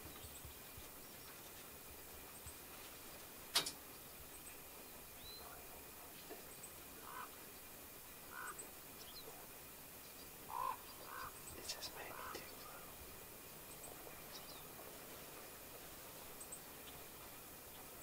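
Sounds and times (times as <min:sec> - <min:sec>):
faint background hiss: 0:00.0 - 0:18.0
bird calls: 0:03.8 - 0:15.0.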